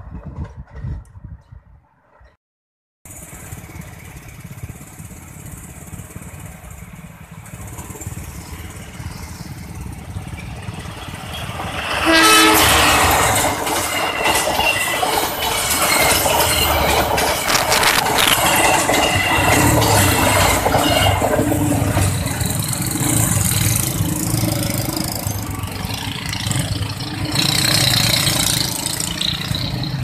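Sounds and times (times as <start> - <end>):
train rumbling: 0.0 - 2.3, 3.1 - 30.0
wheel and rail noise: 3.1 - 30.0
locomotive horn blast: 11.9 - 13.4, 20.6 - 21.4.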